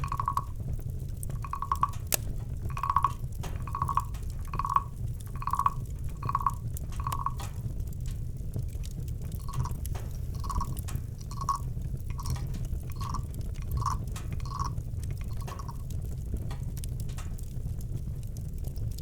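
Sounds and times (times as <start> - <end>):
night animal drip-like calls: 0.0 - 7.8, 9.3 - 16.7
campfire crackling and popping: 0.0 - 19.0.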